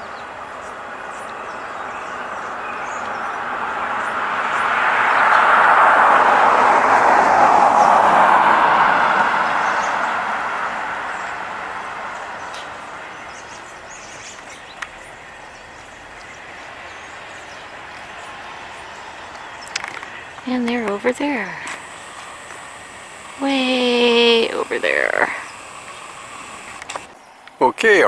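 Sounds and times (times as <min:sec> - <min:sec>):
passing vehicle rushing: 0:00.0 - 0:28.0
sharp click: 0:26.6 - 0:27.6.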